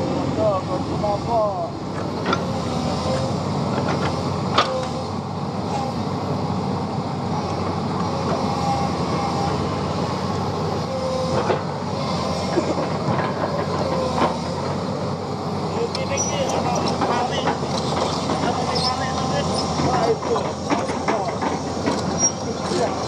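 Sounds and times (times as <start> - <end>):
excavator diesel engine running: 0.0 - 23.0
brief squeaks: 22.1 - 22.4.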